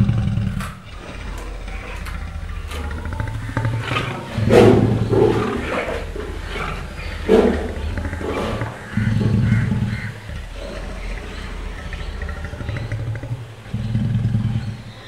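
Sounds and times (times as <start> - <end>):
lion growling: 0.0 - 15.0.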